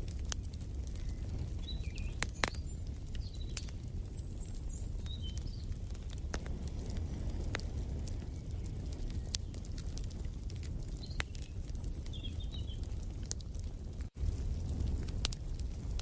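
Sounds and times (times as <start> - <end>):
low fire rumble: 0.0 - 16.0
wood fire crackling and popping: 0.0 - 16.0
birds chirping: 1.0 - 6.2, 8.2 - 13.0.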